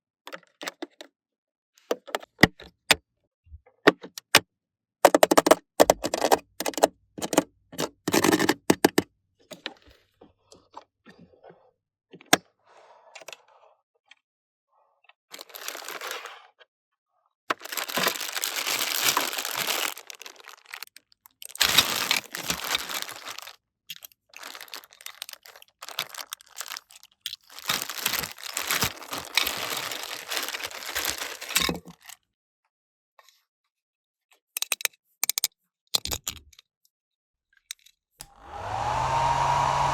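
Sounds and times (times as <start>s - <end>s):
plastic film crinkling and tearing: 17.5s - 20.9s, 21.5s - 23.6s, 24.3s - 31.6s.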